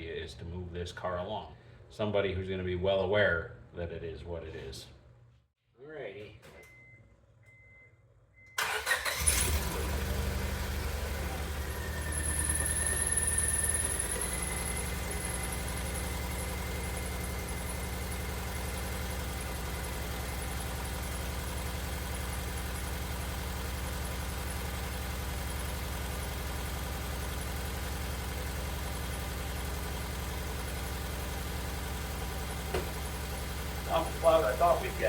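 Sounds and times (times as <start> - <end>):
car engine idling: 8.6 - 35.0.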